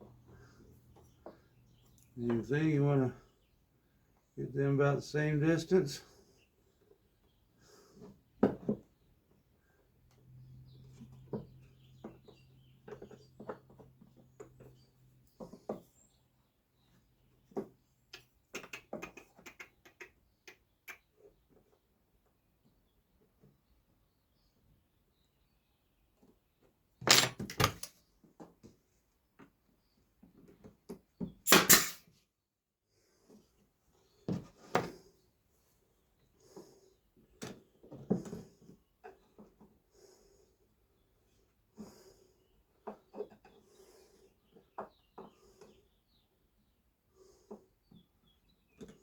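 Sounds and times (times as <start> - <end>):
nail gun firing: 27.0 - 27.9, 31.5 - 32.0
wooden pieces clicking and knocking: 27.0 - 27.9.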